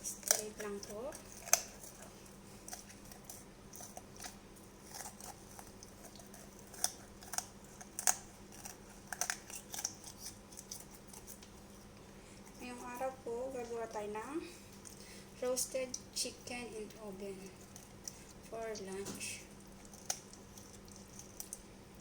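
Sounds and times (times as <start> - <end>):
scissors cutting through chicken bone: 0.0 - 11.6, 19.8 - 21.6.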